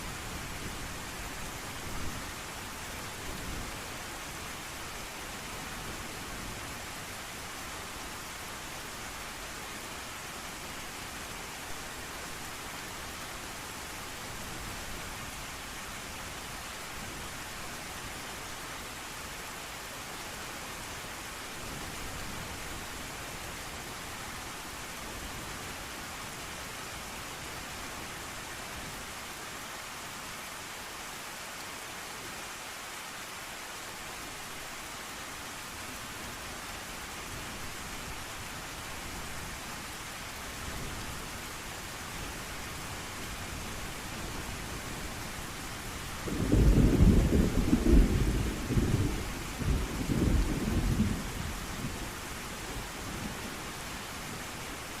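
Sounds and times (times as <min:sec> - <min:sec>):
heavy rain: 0:00.0 - 0:55.0
distant thunder rumble: 0:46.2 - 0:51.4.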